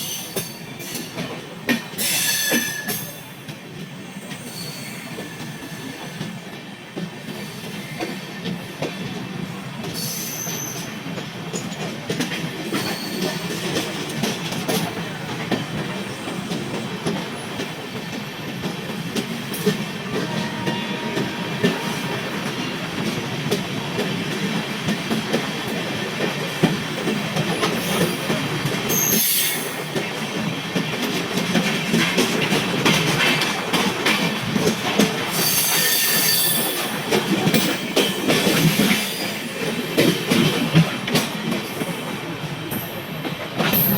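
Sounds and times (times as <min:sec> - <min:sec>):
train coaches rumbling: 0:00.0 - 0:43.9
high wheel squeals: 0:12.7 - 0:13.5.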